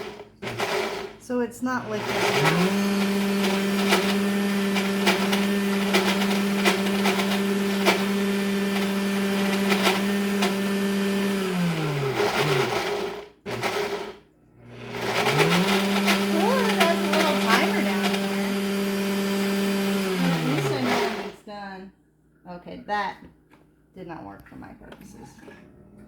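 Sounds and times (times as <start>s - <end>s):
blender motor running: 0.0s - 21.4s.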